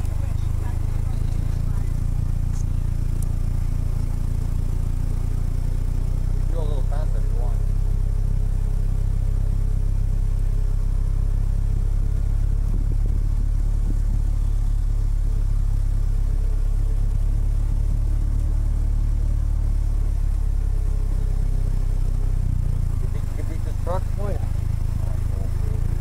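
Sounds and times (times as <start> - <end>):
car engine low rumble: 0.0 - 26.0.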